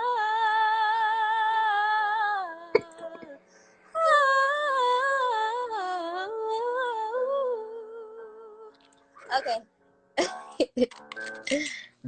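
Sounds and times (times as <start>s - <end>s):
woman singing a cappella: 0.0s - 3.4s, 4.0s - 8.8s.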